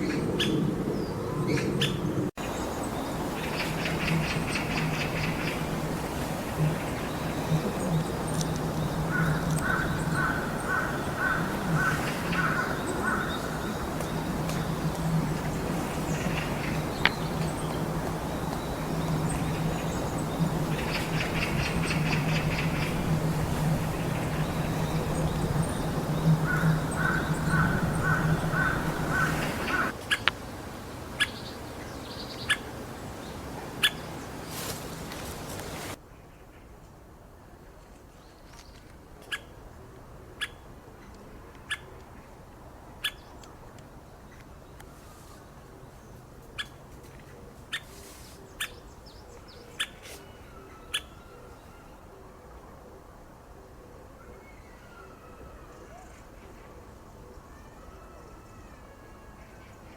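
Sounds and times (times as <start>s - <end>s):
bird calls: 0.0s - 36.0s
low hum: 0.2s - 29.9s.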